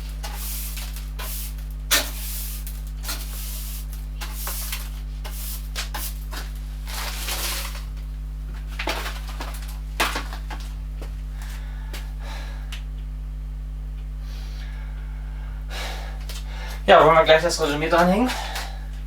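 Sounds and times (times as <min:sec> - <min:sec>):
low electrical hum: 0:00.0 - 0:19.0
rustling handling noises: 0:04.1 - 0:11.6.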